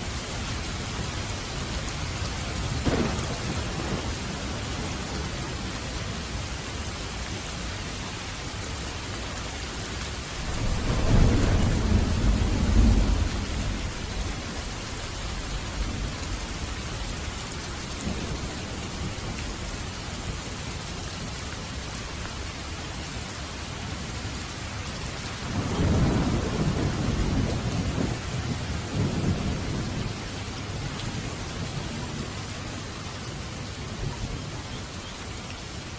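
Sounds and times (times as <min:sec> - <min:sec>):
steady rain: 0:00.0 - 0:35.9
thunder rumbling: 0:02.2 - 0:06.4, 0:10.2 - 0:21.3, 0:25.3 - 0:34.7.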